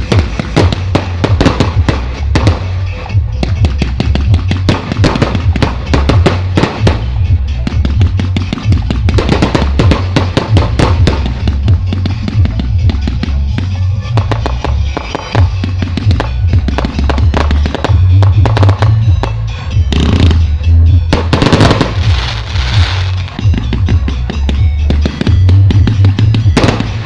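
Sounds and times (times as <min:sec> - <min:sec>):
fireworks crackling and popping: 0:00.0 - 0:27.0
music with heavy bass: 0:00.0 - 0:27.0
fireworks hissing: 0:21.2 - 0:23.4.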